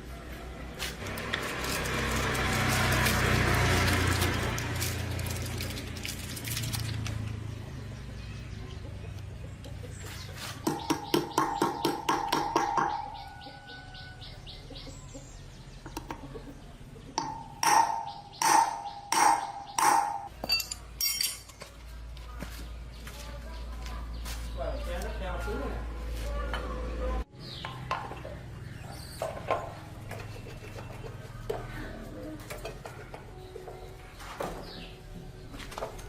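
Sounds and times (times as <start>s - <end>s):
hammer striking metal: 17.2s - 21.5s.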